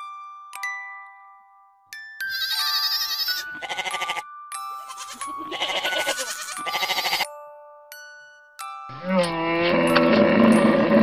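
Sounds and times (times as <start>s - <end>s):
goat kid bleating: 2.3s - 4.2s, 4.8s - 7.3s.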